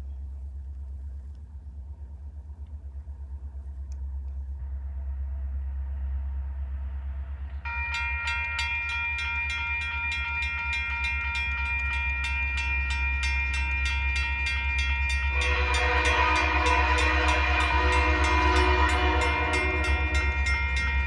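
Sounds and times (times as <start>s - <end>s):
low rumble: 0.0s - 7.9s, 11.1s - 21.0s
railroad crossing bell: 7.7s - 21.0s
locomotive horn: 14.2s - 21.0s.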